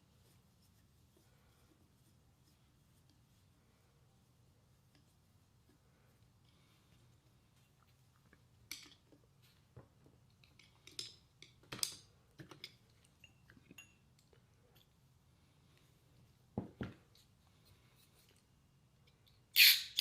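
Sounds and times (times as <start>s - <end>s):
small parts clicking and clinking: 10.3s - 14.9s.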